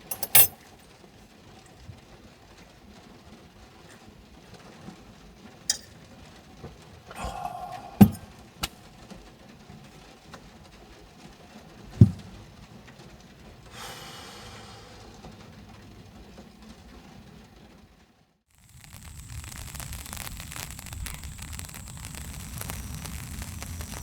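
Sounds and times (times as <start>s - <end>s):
clicks and clinks of objects: 0.0s - 0.6s
hissing rustle: 18.6s - 24.0s.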